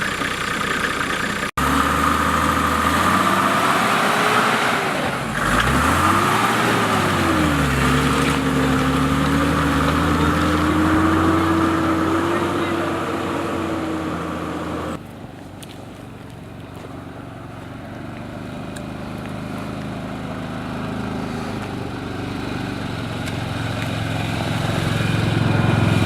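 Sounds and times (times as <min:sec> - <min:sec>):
off-road vehicle engine revving: 0:00.0 - 0:15.0, 0:16.7 - 0:26.0.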